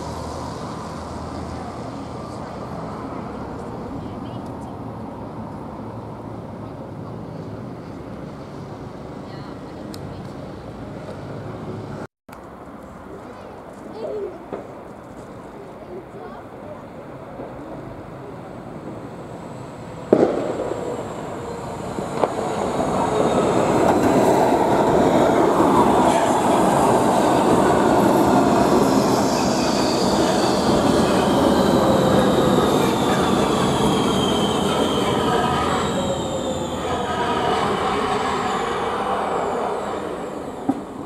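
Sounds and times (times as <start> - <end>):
rail vehicle passing with whine: 0.0 - 41.0
wheel squeal: 28.6 - 38.8.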